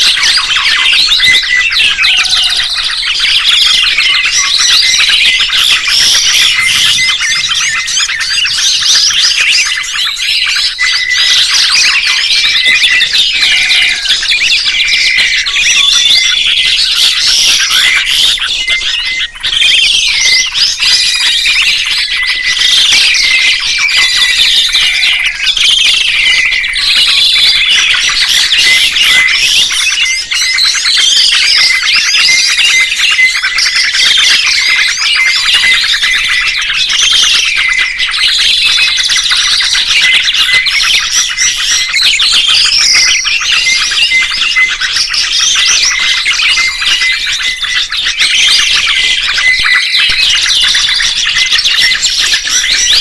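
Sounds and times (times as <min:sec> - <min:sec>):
songbirds chirping: 0:00.0 - 0:53.0.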